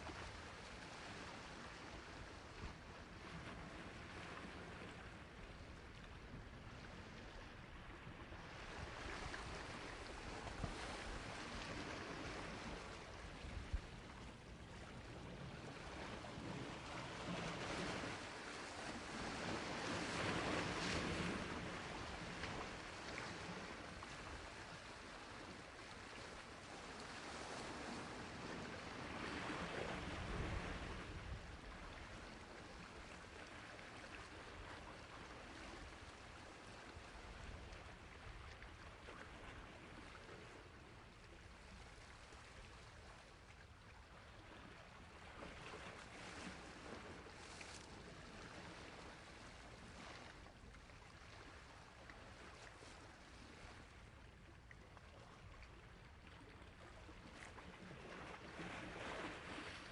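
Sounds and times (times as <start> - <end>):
sea waves washing on shore: 6.8 - 43.1.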